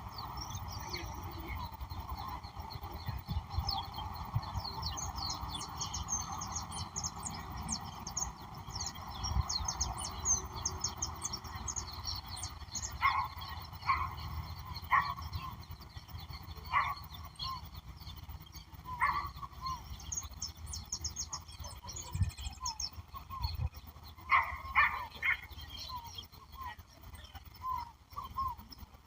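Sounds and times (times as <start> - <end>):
louder lower bird calls: 0.0 - 28.8
birds chirping: 0.0 - 29.0.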